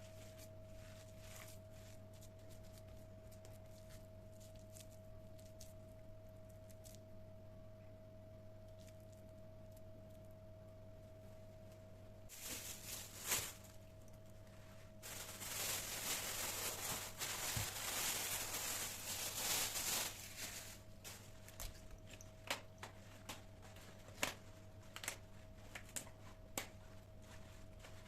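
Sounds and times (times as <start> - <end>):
faint steady hum: 0.0 - 28.0
paper rustling and crinkling: 12.3 - 13.9, 14.5 - 28.0.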